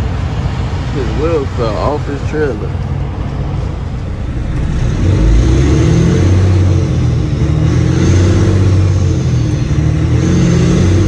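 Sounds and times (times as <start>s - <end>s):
diesel truck engine under load: 0.0s - 11.0s.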